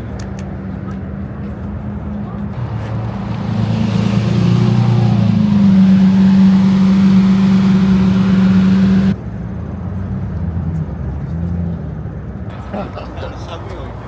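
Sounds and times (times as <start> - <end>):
car engine revving: 2.6 - 9.2.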